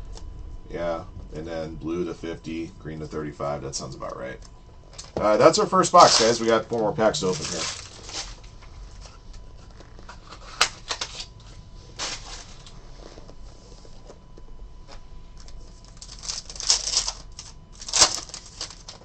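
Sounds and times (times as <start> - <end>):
wrapper tearing and crinkling: 6.0 - 8.6, 10.0 - 11.3, 15.8 - 19.0
cards being handled: 6.0 - 11.3.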